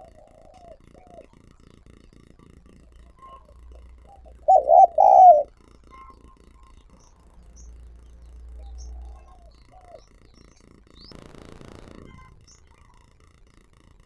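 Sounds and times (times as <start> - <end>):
faint bird chirps: 0.0 - 1.7, 2.4 - 11.2
dove cooing: 0.0 - 10.5.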